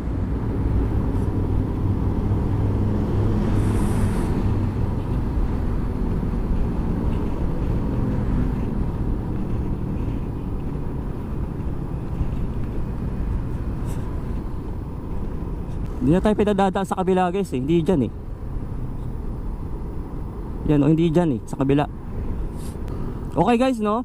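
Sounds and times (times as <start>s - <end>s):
road and wind noise: 0.0s - 24.0s.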